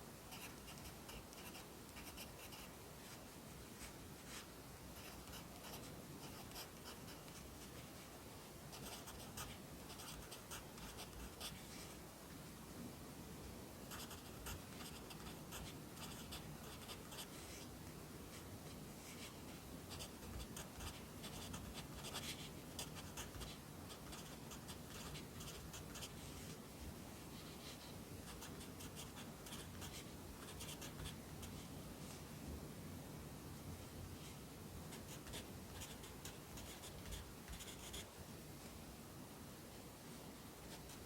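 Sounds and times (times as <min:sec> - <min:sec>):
pencil scratching on paper: 0:00.3 - 0:02.7, 0:04.3 - 0:07.8, 0:08.7 - 0:11.7, 0:13.9 - 0:17.7, 0:19.1 - 0:26.3, 0:34.9 - 0:38.1.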